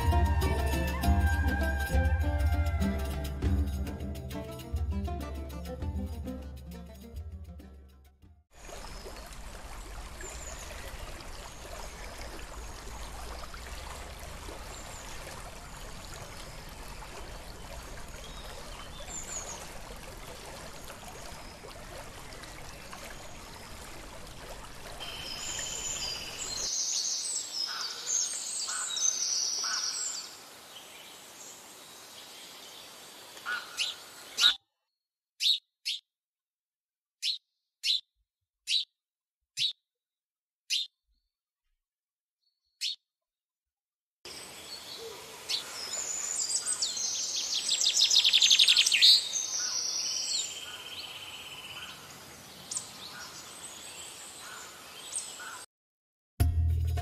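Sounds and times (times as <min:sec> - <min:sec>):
sharp bird calls: 0:27.6 - 0:30.2, 0:33.4 - 0:34.6, 0:37.2 - 0:38.1, 0:39.6 - 0:39.8, 0:40.7 - 0:41.0, 0:42.8 - 0:43.0.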